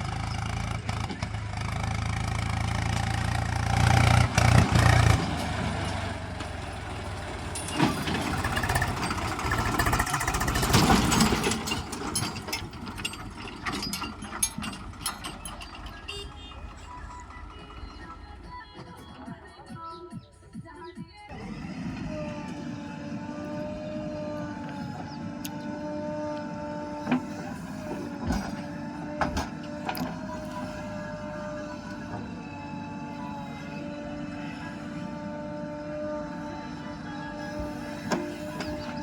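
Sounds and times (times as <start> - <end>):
diesel engine running: 0.0 - 19.9, 21.2 - 39.0
sharp clanks and knocks: 7.4 - 16.6, 26.4 - 30.6.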